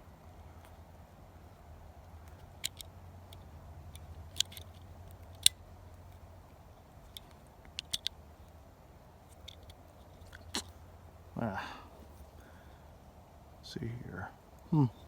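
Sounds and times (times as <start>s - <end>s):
low steady hum: 0.0s - 15.0s
pistol parts clicking and tapping: 2.2s - 5.6s, 7.1s - 8.2s, 9.4s - 10.7s.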